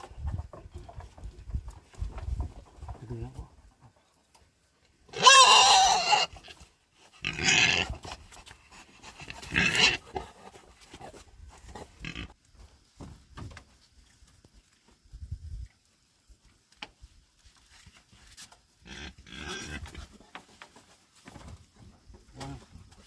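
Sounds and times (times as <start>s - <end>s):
pigs squealing: 5.1s - 6.6s, 7.2s - 8.0s, 9.2s - 10.2s.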